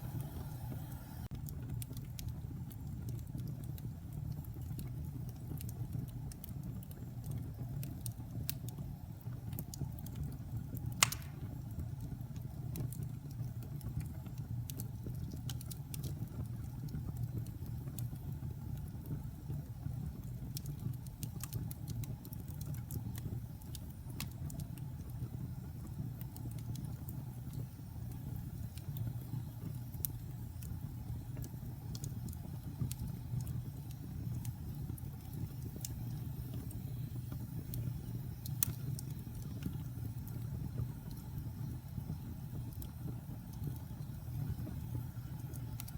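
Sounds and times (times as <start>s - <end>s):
burning wood crackling and popping: 0.0s - 45.9s
fire flames rushing: 11.0s - 11.6s.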